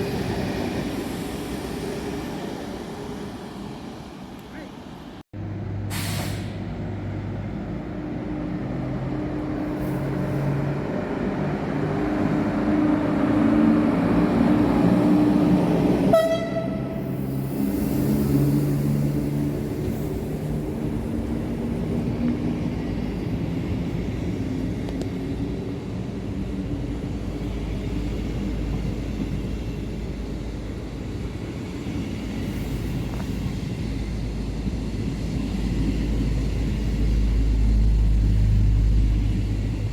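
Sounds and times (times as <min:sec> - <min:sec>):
train rumbling past: 0:00.0 - 0:39.9
train horn blast: 0:16.1 - 0:17.0.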